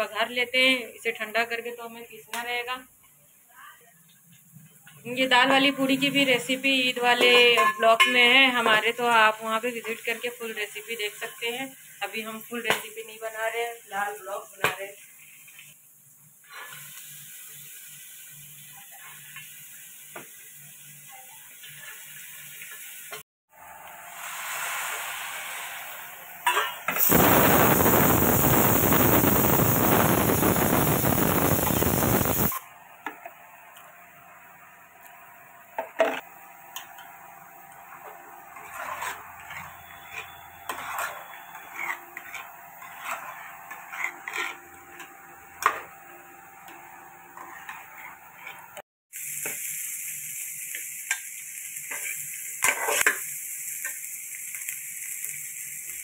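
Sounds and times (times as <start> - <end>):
lentils sizzling in hot oil: 4.4 - 23.2, 23.9 - 32.6, 35.7 - 56.0
nuts sizzling in ghee: 7.8 - 23.2, 24.0 - 32.6, 36.2 - 56.0
steel ladle scraping pot: 38.5 - 45.8, 47.3 - 48.7.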